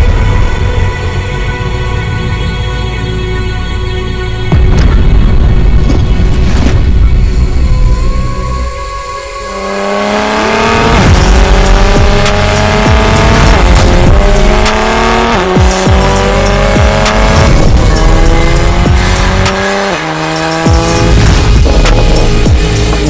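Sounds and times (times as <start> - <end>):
car engine accelerating: 8.9 - 23.0.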